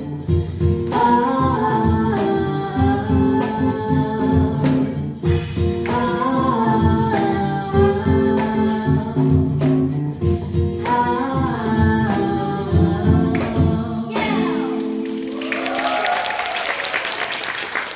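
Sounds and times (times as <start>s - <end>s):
live band playing pop song: 0.0s - 15.4s
drums: 0.0s - 16.1s
person singing: 0.9s - 5.0s, 5.8s - 9.7s, 10.3s - 16.1s.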